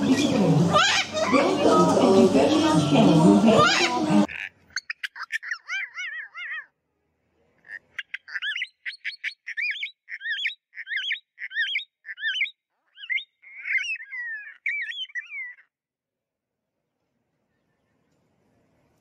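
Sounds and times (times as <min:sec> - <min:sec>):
bird chirping: 0:03.6 - 0:06.7, 0:07.6 - 0:15.7.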